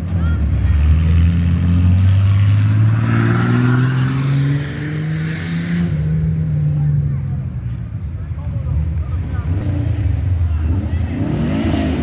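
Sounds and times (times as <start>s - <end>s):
car engine revving: 0.6s - 7.2s, 8.7s - 12.0s.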